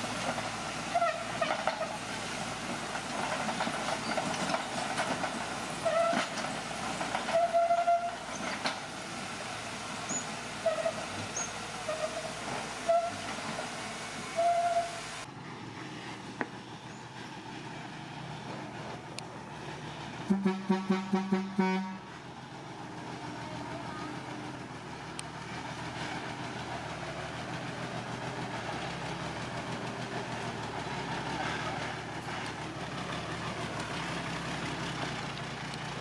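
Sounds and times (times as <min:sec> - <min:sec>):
bulldozer clatter: 0:00.0 - 0:09.0, 0:23.0 - 0:36.0
metallic track squeals: 0:05.8 - 0:06.4, 0:07.2 - 0:08.8, 0:10.0 - 0:13.4, 0:14.2 - 0:15.2.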